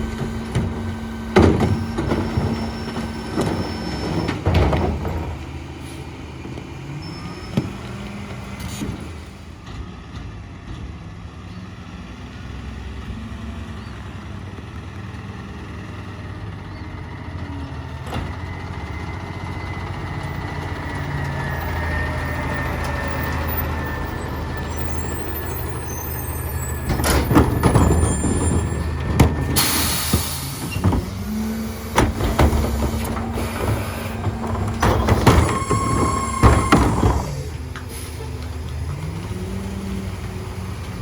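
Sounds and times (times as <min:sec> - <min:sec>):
garbage truck engine hum: 0:00.0 - 0:41.0
air brake hiss: 0:29.6 - 0:30.8.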